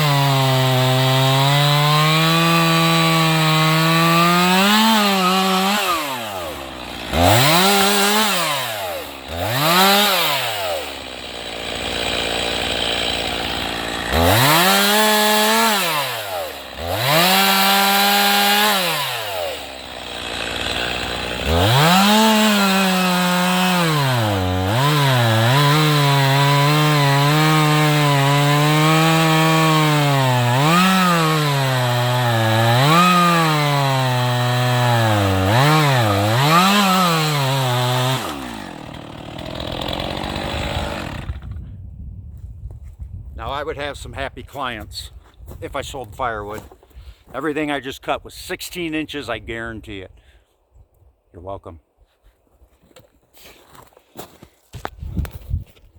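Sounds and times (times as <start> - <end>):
chainsaw revving and cutting wood: 0.0 - 41.7.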